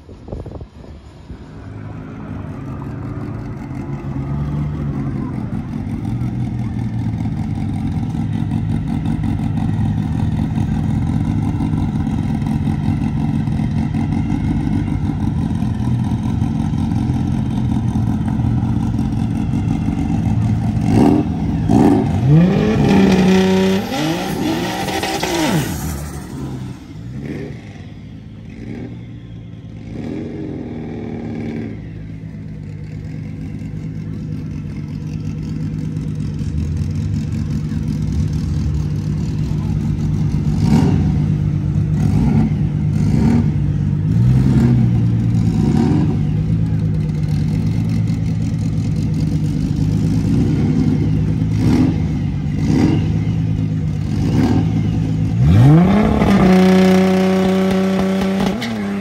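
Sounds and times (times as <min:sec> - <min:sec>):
race car engines idling: 0:00.0 - 0:59.0
engine revving hard: 0:20.8 - 0:27.6, 0:55.4 - 0:59.0.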